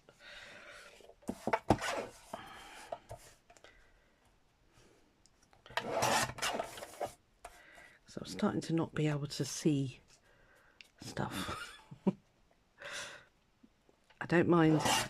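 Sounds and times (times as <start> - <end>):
card cutting strokes: 5.8 - 7.1, 14.7 - 15.0.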